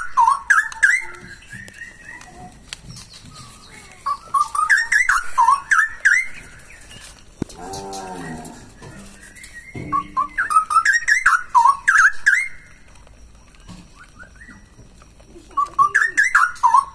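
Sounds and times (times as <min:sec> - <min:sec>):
bird singing whistled phrases: 0:00.0 - 0:07.1, 0:08.8 - 0:12.8, 0:13.9 - 0:14.7, 0:15.6 - 0:16.9
low bird call: 0:00.0 - 0:12.9.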